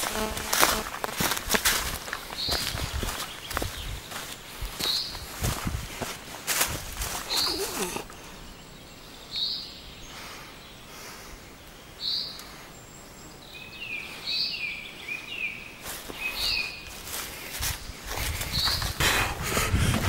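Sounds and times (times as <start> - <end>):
falling bird chirps: 7.0 - 11.1, 11.9 - 17.2.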